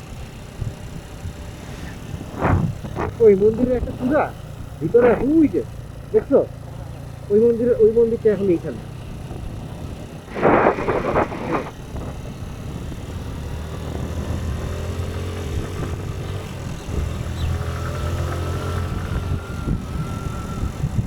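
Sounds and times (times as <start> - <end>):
motorcycle engine humming: 0.0 - 21.0
rush of noise: 1.5 - 4.1, 10.3 - 12.2.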